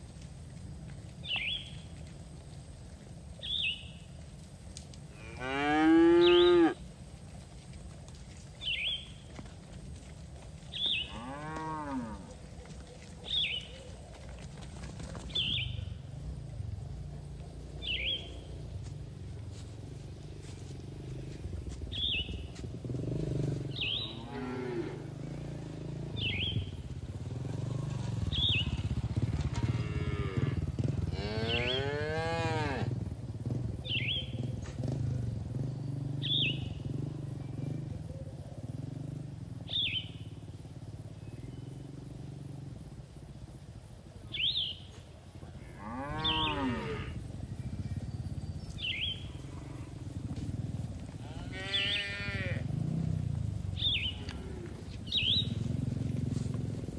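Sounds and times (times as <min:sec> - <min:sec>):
cattle mooing: 0:05.2 - 0:06.8, 0:11.0 - 0:12.4, 0:23.5 - 0:25.4, 0:29.5 - 0:32.9, 0:45.6 - 0:47.3, 0:51.2 - 0:53.0, 0:54.0 - 0:54.9.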